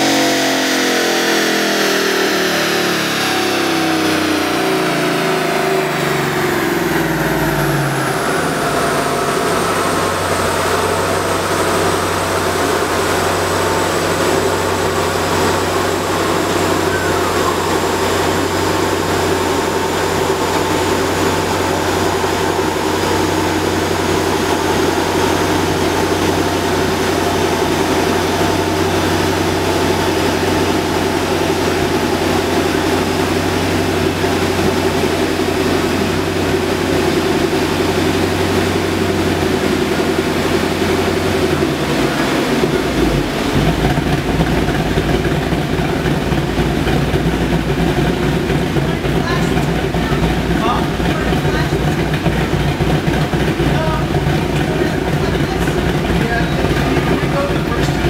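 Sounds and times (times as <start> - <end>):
car engine winding down and idling: 0.0 - 58.0.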